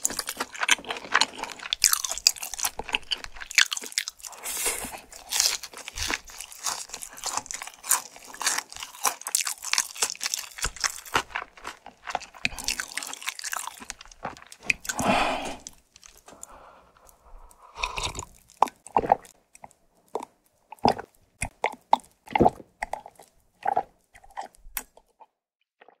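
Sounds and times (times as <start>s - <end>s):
crunching fried chicken: 0.0s - 26.0s
swallowing: 10.5s - 26.0s
wet mouth clicks: 17.1s - 25.3s.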